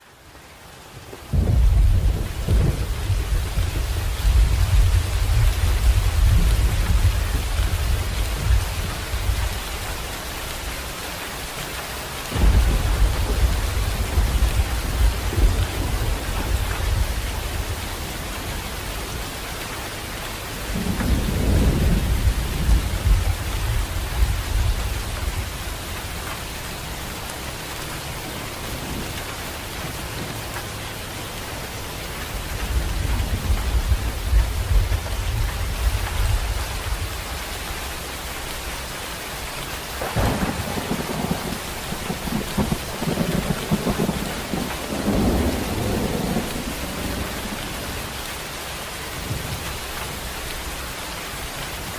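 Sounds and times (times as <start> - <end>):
rain hissing: 0.1 - 51.9
thunder rumbling: 1.3 - 10.1, 12.3 - 19.4, 20.6 - 27.0, 32.4 - 37.9, 40.0 - 48.2.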